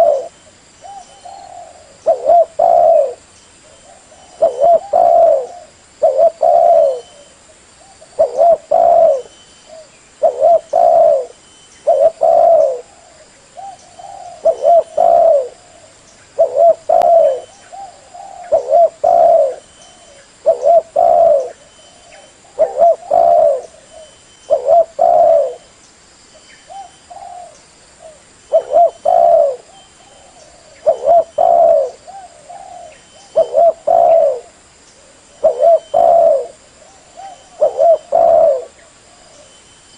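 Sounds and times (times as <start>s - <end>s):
dove cooing: 0.0s - 25.7s, 26.7s - 39.6s.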